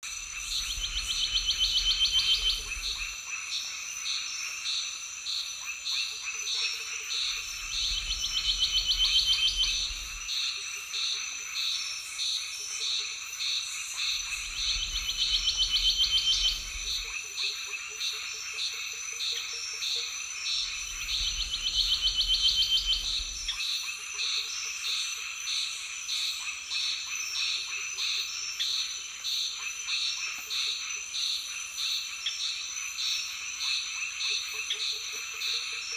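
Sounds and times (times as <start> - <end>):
insect buzzing: 6.9 - 10.7, 13.2 - 17.4, 20.2 - 23.6.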